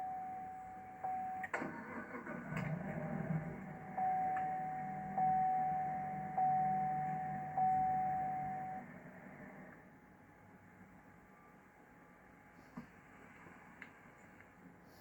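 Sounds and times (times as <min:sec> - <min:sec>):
car warning chime: 0:00.0 - 0:02.2, 0:03.6 - 0:09.0
low steady hum: 0:00.0 - 0:15.0.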